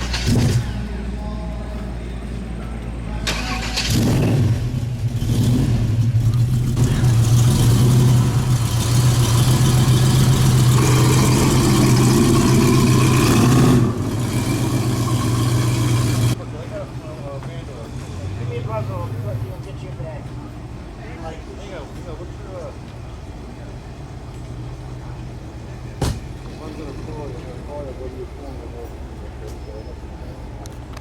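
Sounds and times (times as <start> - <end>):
car engine humming: 0.0 - 16.4.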